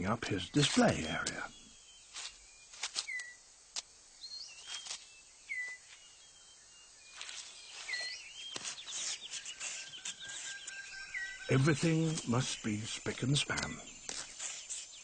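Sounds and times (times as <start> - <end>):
bird whistles sliding down: 2.1 - 3.4, 4.5 - 6.0, 7.2 - 11.6.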